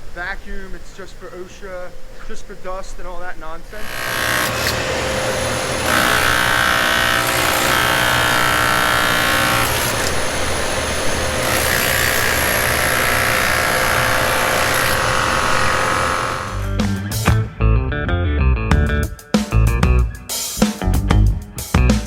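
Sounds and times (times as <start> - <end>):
dust extraction vacuum whining: 0.0 - 16.8.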